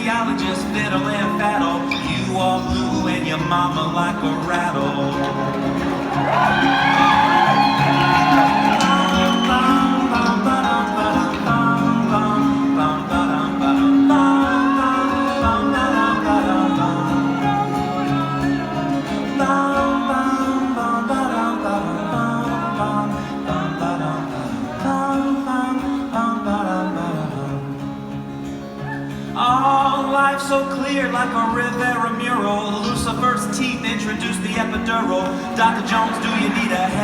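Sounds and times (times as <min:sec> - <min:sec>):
live band backing: 0:00.0 - 0:21.0
acoustic guitar and plucked strings: 0:00.0 - 0:37.0.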